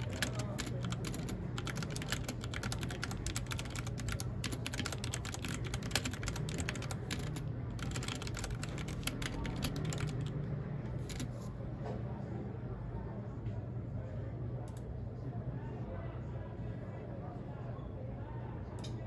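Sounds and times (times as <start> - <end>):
mechanical keyboard typing: 0.0 - 10.4, 11.0 - 11.4.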